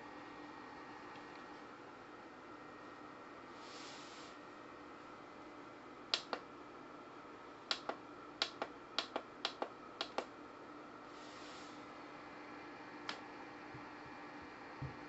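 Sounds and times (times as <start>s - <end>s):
faint steady hum: 0.0s - 15.0s
sharp small clicks: 6.1s - 6.5s, 7.7s - 10.3s.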